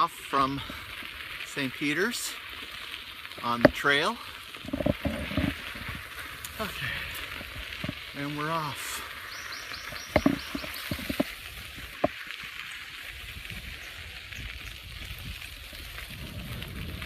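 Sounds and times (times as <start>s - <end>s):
bicycle tyres hissing on gravel: 0.0s - 17.0s.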